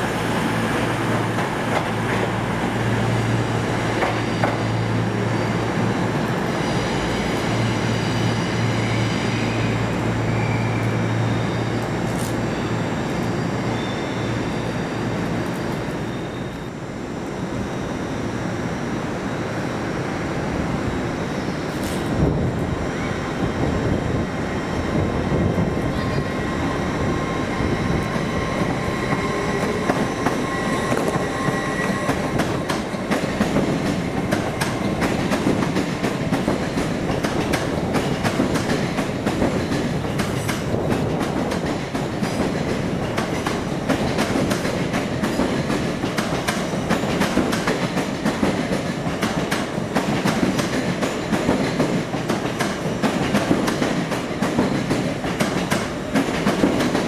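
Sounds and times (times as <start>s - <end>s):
faint high squeal: 6.5s - 16.8s, 24.6s - 33.0s
train wheels clicking over rail joints: 27.9s - 57.0s.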